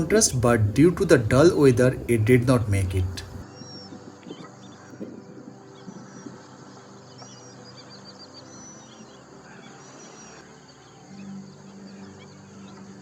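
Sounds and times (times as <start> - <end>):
birds whistling: 0.0 - 12.8
faint steady background noise: 0.0 - 13.0
bird trill: 5.7 - 13.0.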